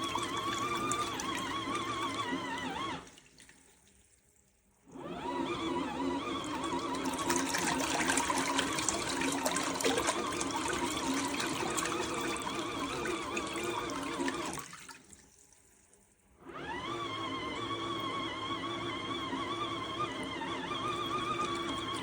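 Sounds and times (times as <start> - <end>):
washing machine motor humming: 0.0 - 3.9, 4.8 - 15.3, 16.4 - 22.0
water churning: 0.0 - 5.0, 5.6 - 15.8, 20.2 - 22.0.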